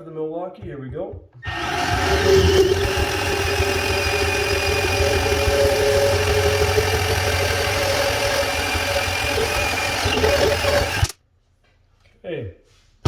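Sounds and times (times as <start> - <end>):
bandsaw cutting pipe: 1.4 - 11.2.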